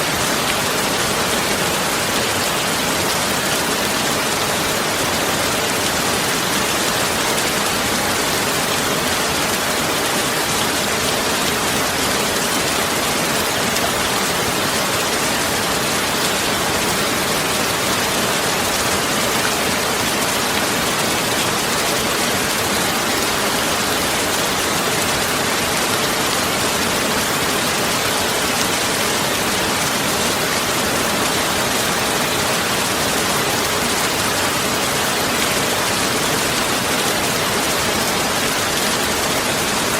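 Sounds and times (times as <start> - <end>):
steady rain-like hiss: 0.0 - 39.9.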